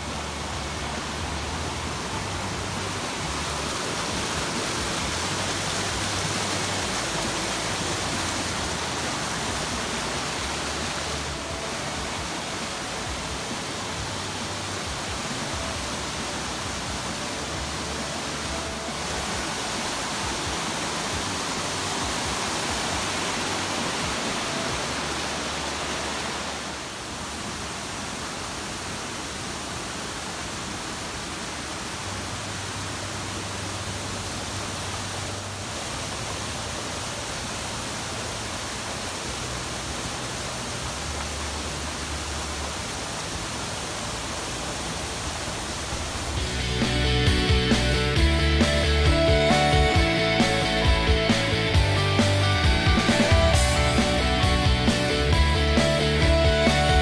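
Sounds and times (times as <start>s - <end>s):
rushing mountain stream: 0.0s - 57.0s.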